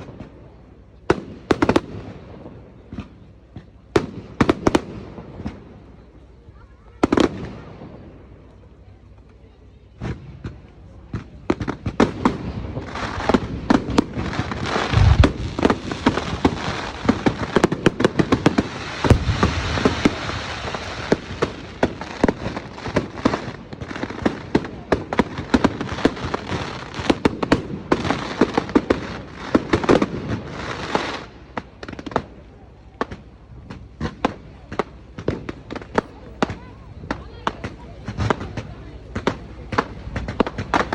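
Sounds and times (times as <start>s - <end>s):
fireworks crackling and banging: 0.0s - 40.9s
deep firework booms: 10.0s - 30.6s.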